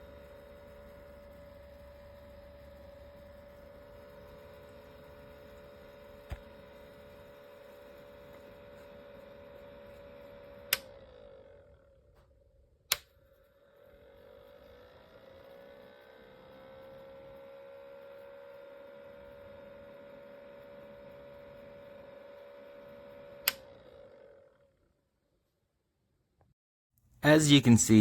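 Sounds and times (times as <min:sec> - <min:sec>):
humidifier humming: 0:00.0 - 0:11.0.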